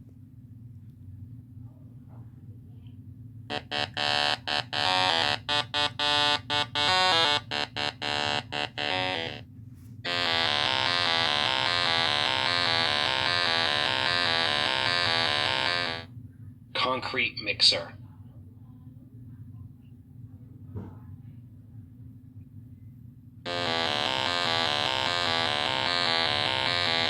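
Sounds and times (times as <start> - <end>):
harsh electronic buzzer: 3.5 - 9.4, 10.1 - 16.1, 23.5 - 27.0.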